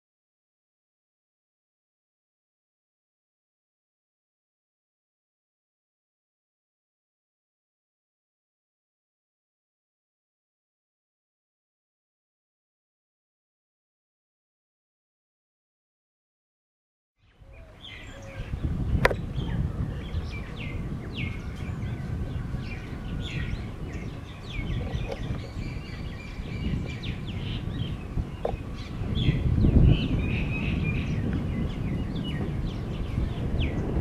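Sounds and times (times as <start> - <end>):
birds chirping falling calls: 17.2 - 34.0
steady low rumble: 17.6 - 34.0.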